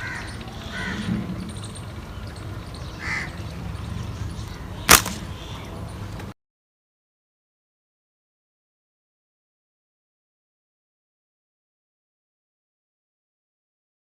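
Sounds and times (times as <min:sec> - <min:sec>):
harsh bird calls: 0:00.0 - 0:06.2
low outdoor rumble: 0:00.0 - 0:06.4
sharp crack: 0:04.8 - 0:05.4.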